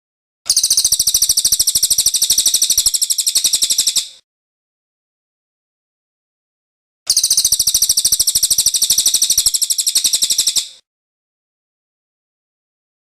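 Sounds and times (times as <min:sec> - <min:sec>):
bird high-pitched trill: 0:00.5 - 0:04.2, 0:07.1 - 0:10.8.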